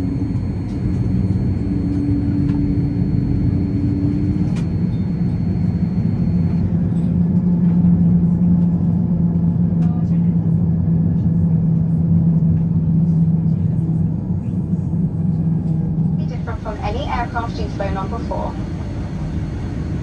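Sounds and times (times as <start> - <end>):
low hum: 0.0 - 7.3, 16.2 - 20.0
airliner cabin rumble: 0.0 - 20.0.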